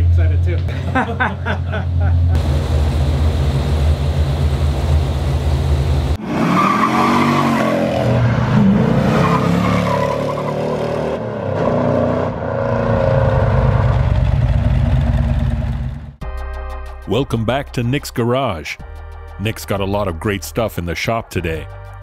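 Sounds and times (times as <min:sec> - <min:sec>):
car engine running: 0:00.0 - 0:06.2, 0:13.5 - 0:16.2
tire squeal: 0:06.2 - 0:14.0.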